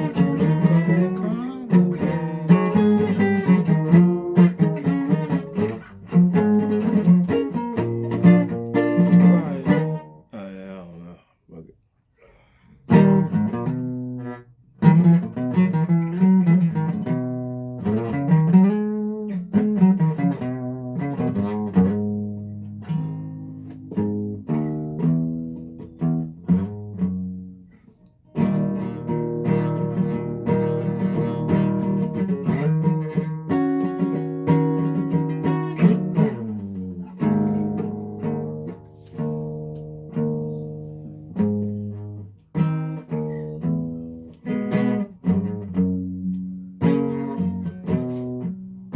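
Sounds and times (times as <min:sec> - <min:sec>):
solo guitar playing: 0:00.0 - 0:11.2, 0:12.9 - 0:27.7, 0:28.3 - 0:48.9.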